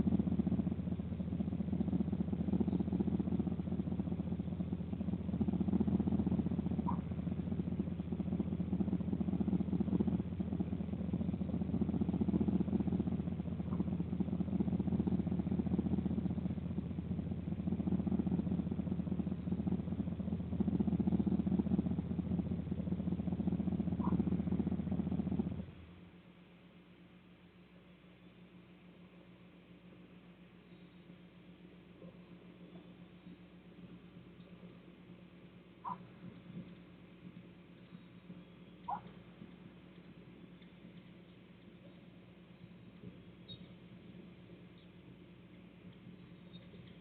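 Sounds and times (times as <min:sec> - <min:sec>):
low mechanical hum: 0:00.0 - 0:47.0
faint high chirps: 0:30.6 - 0:31.2, 0:41.8 - 0:43.9, 0:46.2 - 0:47.0.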